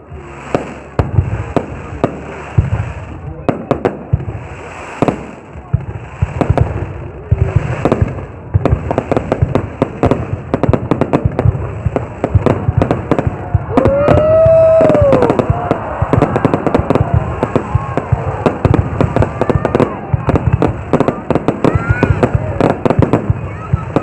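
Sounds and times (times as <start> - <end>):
fireworks cracks and bangs: 0.0 - 24.0
firework whistle: 13.7 - 20.0.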